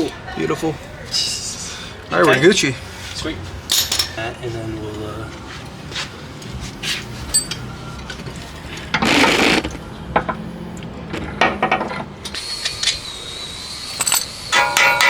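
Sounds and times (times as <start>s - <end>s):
metal tool clinks: 3.7s - 4.2s, 7.3s - 7.6s.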